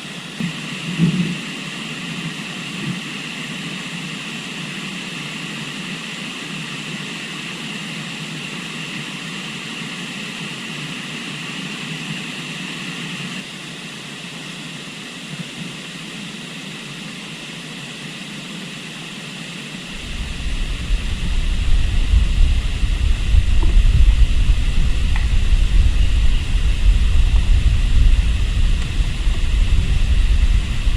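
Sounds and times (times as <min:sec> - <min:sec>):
wind buffeting microphone: 0:19.9 - 0:30.9.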